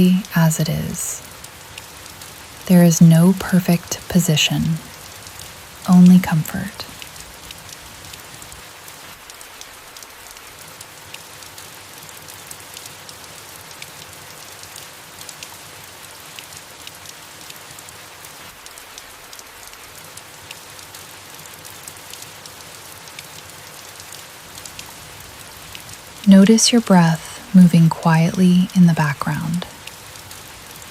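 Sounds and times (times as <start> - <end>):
soft rain on leaves: 0.0 - 30.9.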